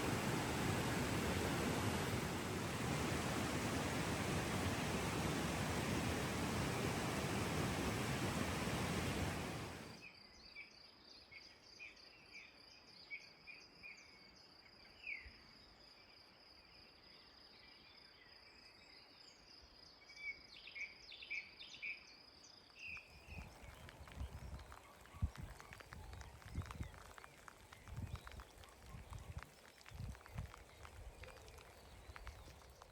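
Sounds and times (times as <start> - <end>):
loud even hiss: 0.0 - 10.0.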